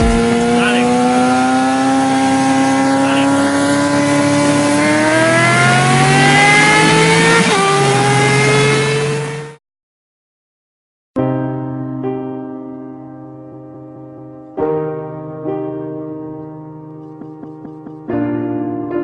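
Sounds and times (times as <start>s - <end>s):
vehicle engine accelerating: 0.0s - 9.6s.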